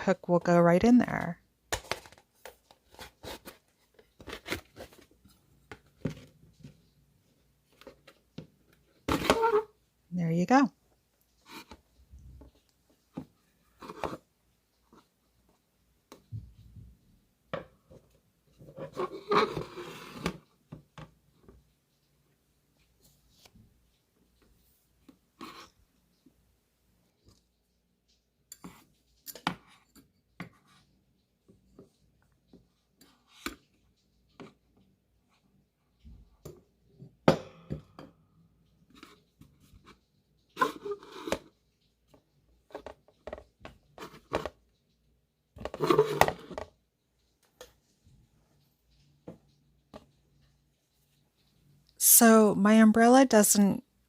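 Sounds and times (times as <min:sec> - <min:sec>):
plastic rustling and rubbing: 0:01.8 - 0:09.8.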